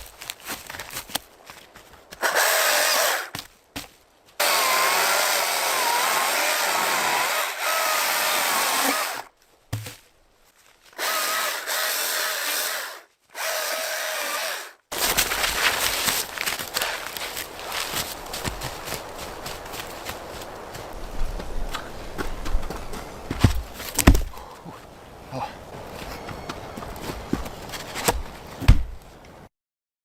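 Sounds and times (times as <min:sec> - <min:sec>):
power tool motor whining: 0:02.2 - 0:03.3, 0:04.4 - 0:09.3, 0:11.0 - 0:14.8.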